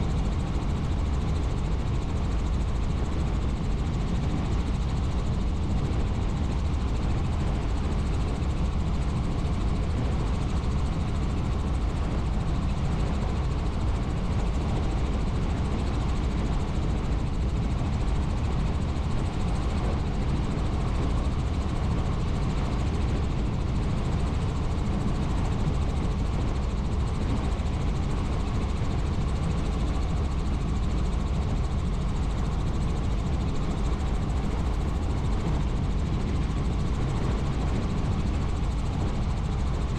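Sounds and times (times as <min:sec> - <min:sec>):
helicopter rotor drone: 0:00.0 - 0:39.9.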